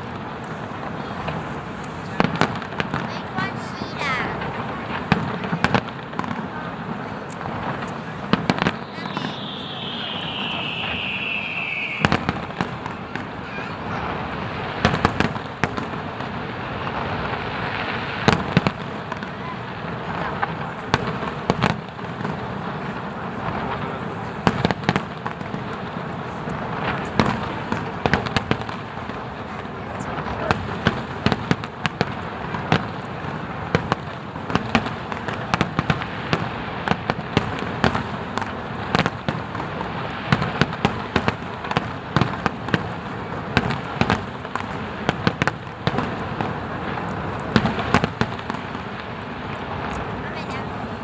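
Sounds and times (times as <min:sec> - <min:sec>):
fireworks bangs and crackles: 0:00.0 - 0:51.0.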